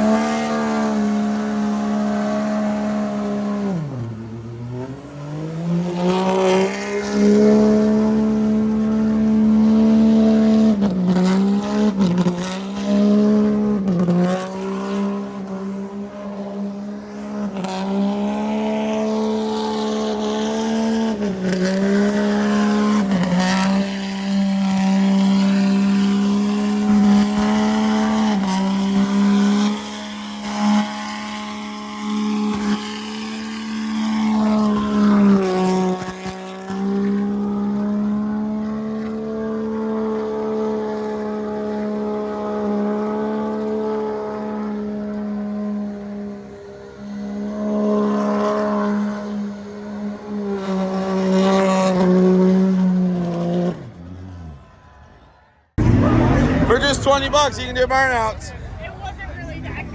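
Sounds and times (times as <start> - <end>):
engine revving high: 0.0 - 59.9
spinning tyres hissing: 44.1 - 53.4.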